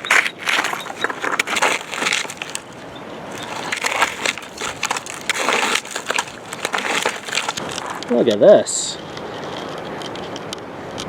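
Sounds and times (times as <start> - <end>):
toy backhoe scraping in sand: 0.0 - 8.4.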